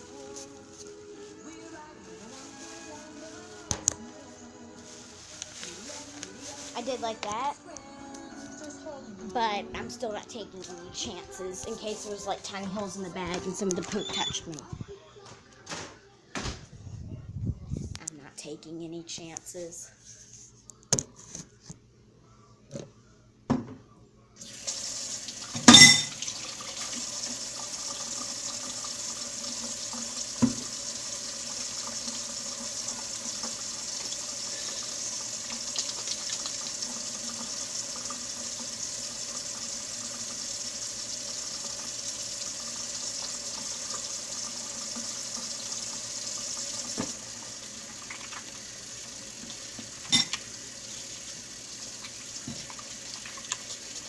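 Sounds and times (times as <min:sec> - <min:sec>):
tap running into a sink: 0:24.6 - 0:54.0.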